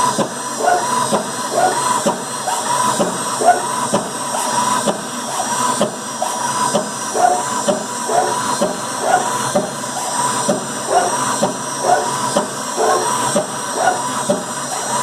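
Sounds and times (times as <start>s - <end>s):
stepper motors whining: 0.0s - 15.0s.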